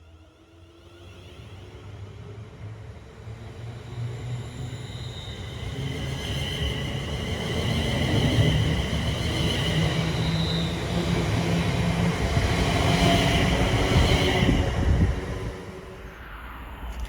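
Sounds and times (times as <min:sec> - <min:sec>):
train rumbling: 0:03.1 - 0:17.0
train wheels squealing: 0:03.6 - 0:15.1.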